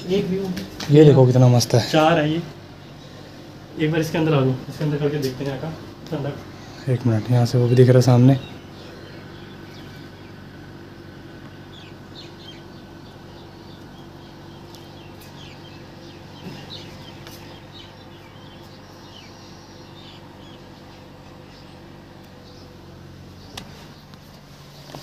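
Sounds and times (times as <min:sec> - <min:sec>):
steady low hum: 0:00.0 - 0:25.0
faint bird chirps: 0:06.3 - 0:25.0.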